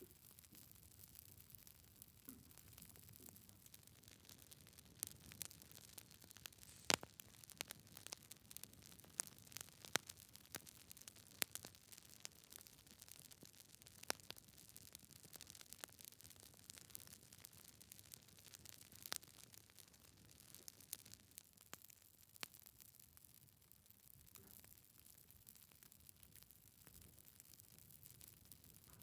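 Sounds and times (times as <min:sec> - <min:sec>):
wood fire crackling: 0:00.0 - 0:29.0
faint hiss: 0:06.4 - 0:07.3.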